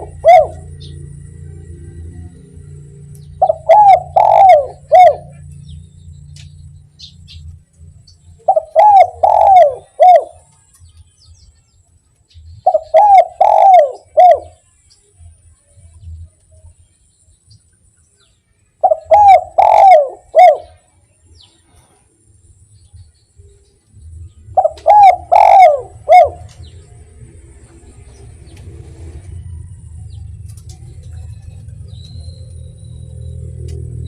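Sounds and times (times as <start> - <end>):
dove cooing: 0.0 - 1.3, 3.4 - 5.6, 8.4 - 10.5, 12.6 - 14.6, 18.8 - 20.8, 24.5 - 29.7.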